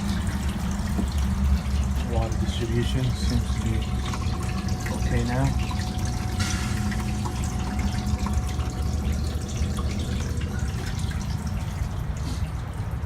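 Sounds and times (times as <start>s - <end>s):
machine hum: 0.0s - 13.0s
water running and splashing: 0.0s - 13.0s.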